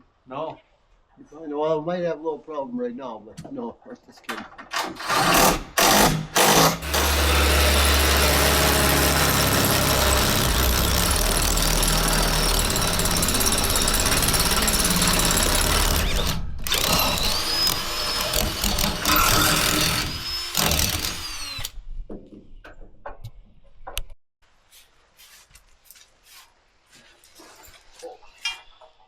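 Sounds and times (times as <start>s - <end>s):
power tool whining: 4.7s - 21.8s.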